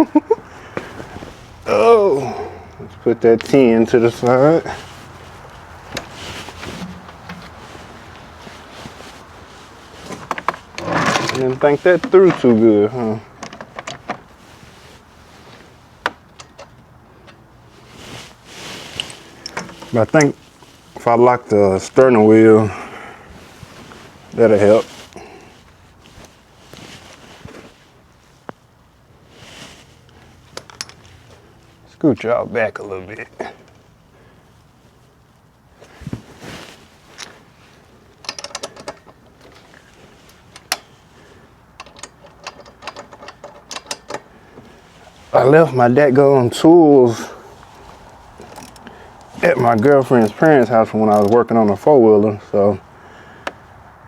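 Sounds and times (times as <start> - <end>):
soft rustle: 0.0 - 54.0
tools and parts clicking: 16.3 - 17.4, 19.0 - 20.4, 30.6 - 31.1, 38.2 - 39.7, 40.3 - 40.9, 41.8 - 44.3.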